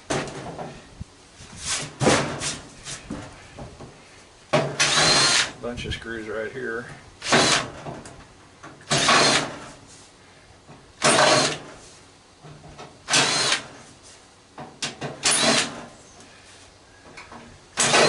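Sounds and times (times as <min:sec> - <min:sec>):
cordless drill whirring: 0:04.8 - 0:05.5, 0:07.2 - 0:07.7, 0:08.9 - 0:09.5, 0:11.0 - 0:11.6, 0:13.1 - 0:13.7, 0:15.2 - 0:15.8, 0:17.8 - 0:18.0.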